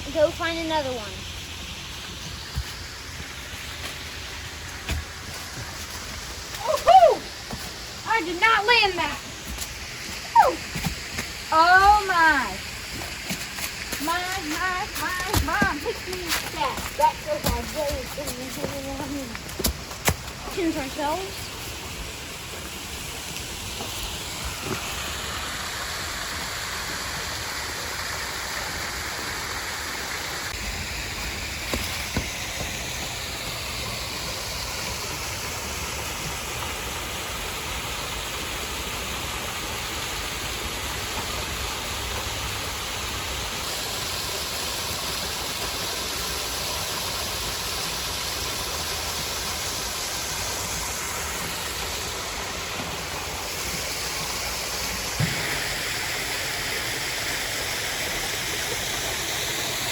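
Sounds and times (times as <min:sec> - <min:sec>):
waterfall rushing over rocks: 0:00.0 - 0:59.9.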